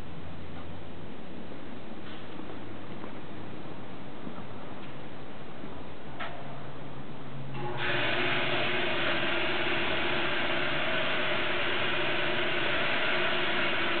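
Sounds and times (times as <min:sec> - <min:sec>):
industrial machinery running: 0:07.5 - 0:14.0.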